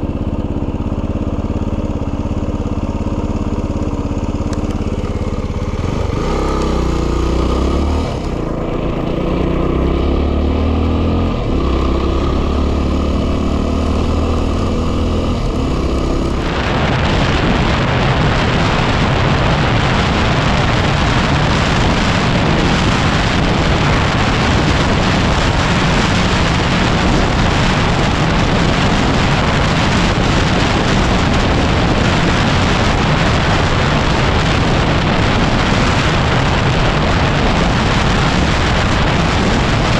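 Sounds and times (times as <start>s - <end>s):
motorcycle engine running: 0.0s - 39.9s
wind noise on microphone: 3.9s - 39.9s.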